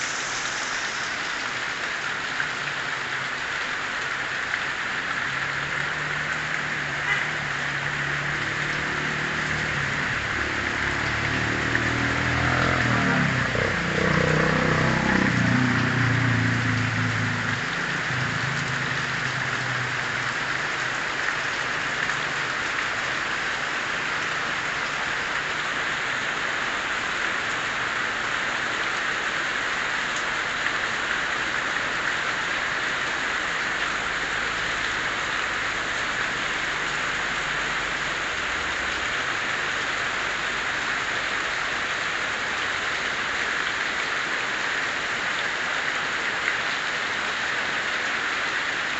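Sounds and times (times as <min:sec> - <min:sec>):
heavy rain falling: 0:00.0 - 0:48.9
passing vehicle engine: 0:05.4 - 0:23.4.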